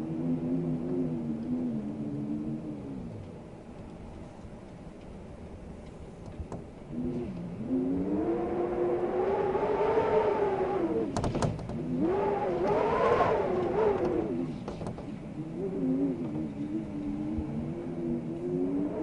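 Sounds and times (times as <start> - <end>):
wind howling: 0.0 - 19.0.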